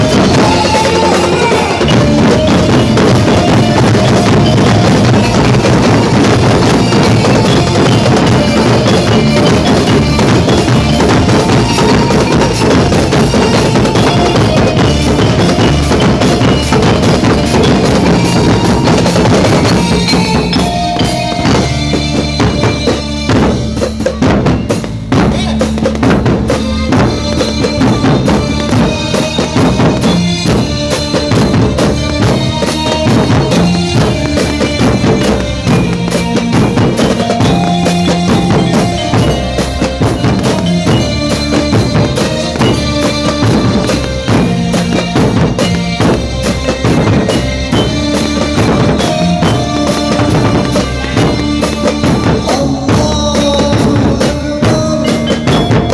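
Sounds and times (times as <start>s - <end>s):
loud music with fast drum beat: 0.0s - 55.9s.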